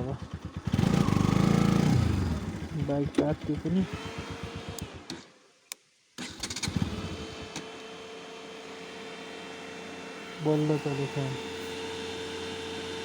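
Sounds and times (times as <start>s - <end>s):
motorcycle engine idling: 0.0s - 5.2s.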